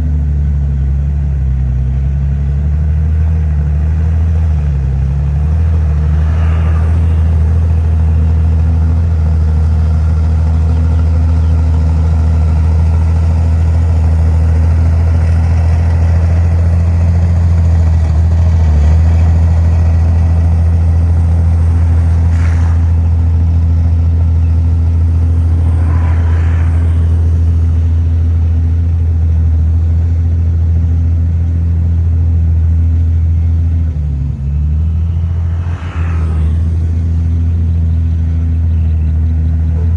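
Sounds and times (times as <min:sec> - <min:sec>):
diesel engine droning: 0:00.0 - 0:39.9
faint higher sounds: 0:19.1 - 0:30.0, 0:32.9 - 0:39.9.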